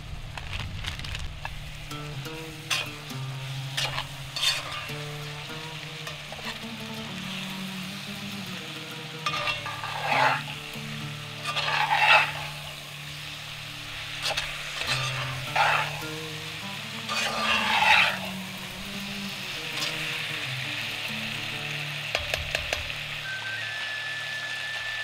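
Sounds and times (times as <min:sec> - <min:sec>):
vegetables sizzling in hot oil: 0:00.0 - 0:25.0
metal spatula scraping a pot: 0:03.7 - 0:05.1, 0:09.2 - 0:13.3, 0:14.0 - 0:16.2, 0:17.1 - 0:18.4.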